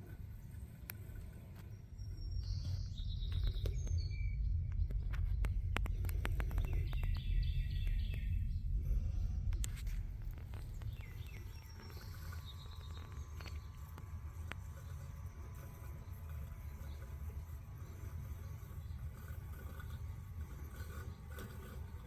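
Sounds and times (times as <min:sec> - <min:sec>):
birds chirping: 0:00.0 - 0:22.0
low rumble: 0:01.2 - 0:22.0
sharp clicks: 0:04.7 - 0:08.4.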